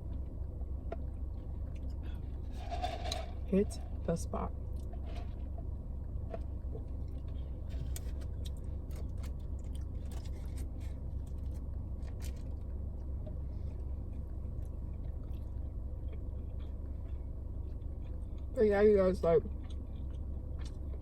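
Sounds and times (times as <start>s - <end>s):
low hum: 0.0s - 21.0s
chewing with wet mouth clicks: 6.3s - 18.6s, 19.4s - 21.0s.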